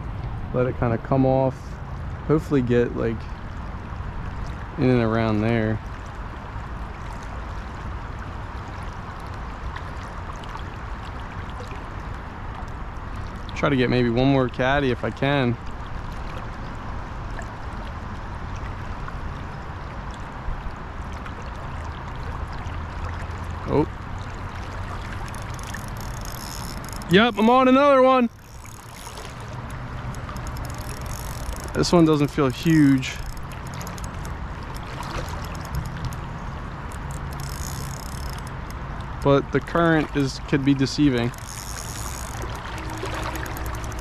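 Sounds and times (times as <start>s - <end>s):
river water flowing: 0.0s - 44.0s.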